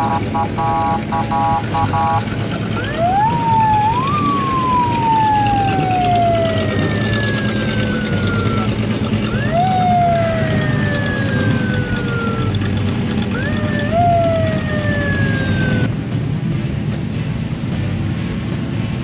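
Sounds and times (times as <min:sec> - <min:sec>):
sirens wailing: 0:00.0 - 0:16.1
low engine rumble: 0:00.0 - 0:19.0.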